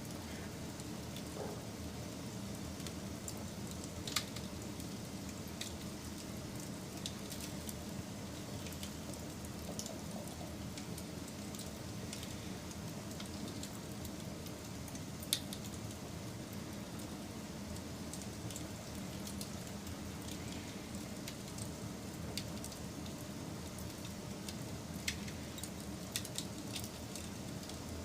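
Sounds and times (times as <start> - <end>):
wood fire crackling: 0.0 - 28.0
fire pops: 18.1 - 27.8.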